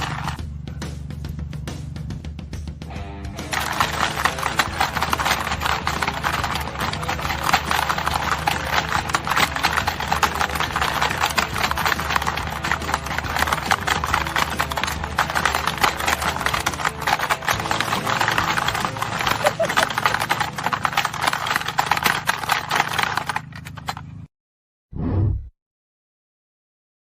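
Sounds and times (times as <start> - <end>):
horse hooves clip-clopping: 0.0 - 0.4, 3.4 - 24.0.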